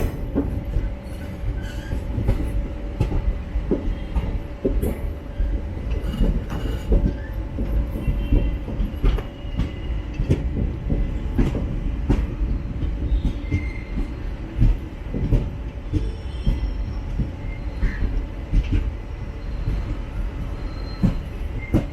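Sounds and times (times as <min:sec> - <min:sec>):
train rumbling on track: 0:00.0 - 0:21.9
faint wheel squeals: 0:19.4 - 0:21.9.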